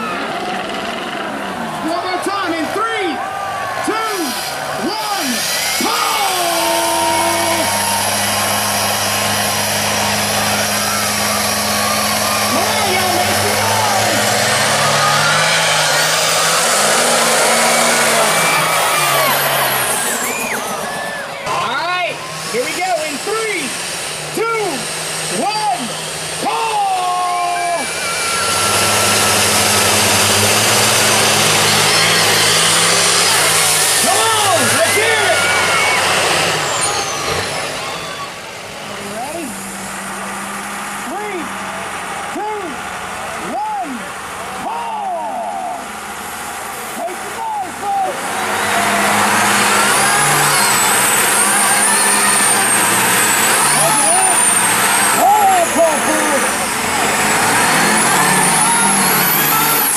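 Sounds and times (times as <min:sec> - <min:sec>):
tyres spinning: 0:00.0 - 0:45.2, 0:46.0 - 0:59.9
monster truck engines at high revs: 0:00.0 - 0:59.9
high-pitched whine: 0:25.9 - 0:40.2.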